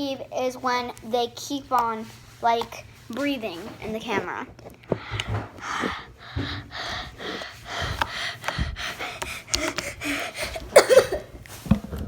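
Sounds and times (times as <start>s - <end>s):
person breathing heavily: 4.9s - 11.2s.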